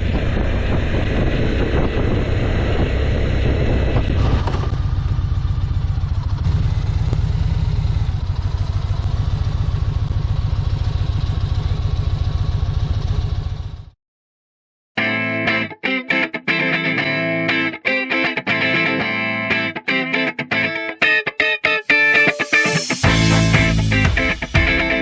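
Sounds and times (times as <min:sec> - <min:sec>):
motorcycle engine running: 0:00.0 - 0:14.0, 0:23.0 - 0:25.0.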